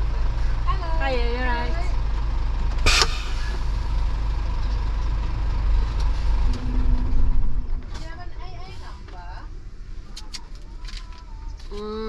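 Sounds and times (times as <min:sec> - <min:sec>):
steady low hum: 0:00.0 - 0:08.3
diesel engine rumbling: 0:00.0 - 0:12.0.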